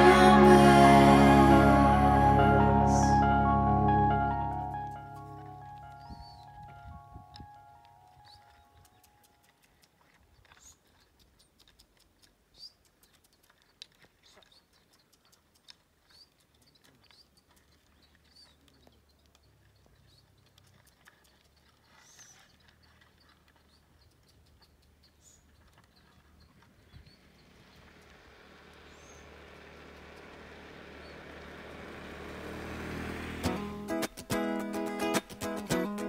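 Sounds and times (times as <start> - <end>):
small birds chirping: 5.1 - 31.8.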